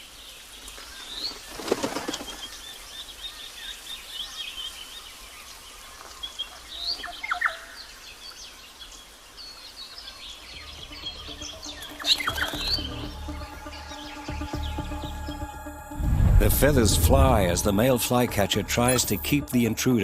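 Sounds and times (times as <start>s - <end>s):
loud bird calls: 0.0s - 15.5s
bird wings flapping: 0.7s - 2.8s.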